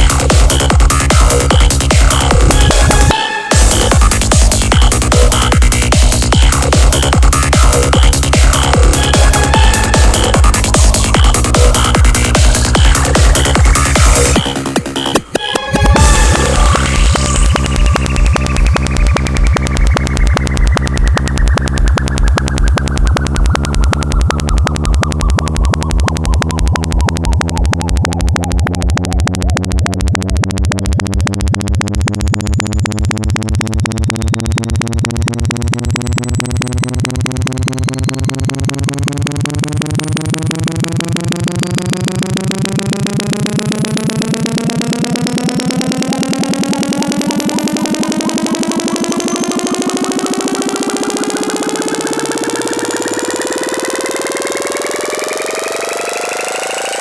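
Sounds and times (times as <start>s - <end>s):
pulsing bass test tone: 0.0s - 57.0s.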